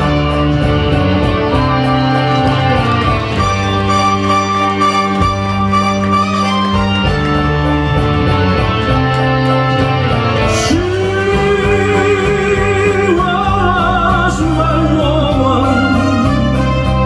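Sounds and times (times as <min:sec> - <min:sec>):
person singing with vibrato: 0:10.4 - 0:16.9.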